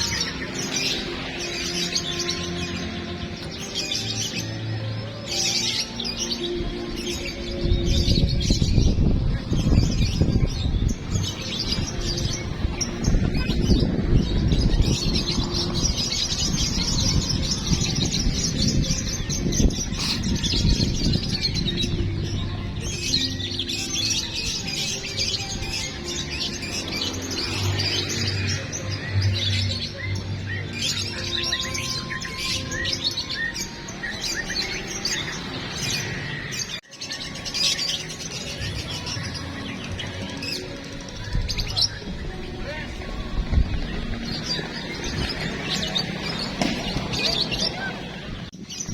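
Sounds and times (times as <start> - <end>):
songbirds chirping: 0.0 - 48.9.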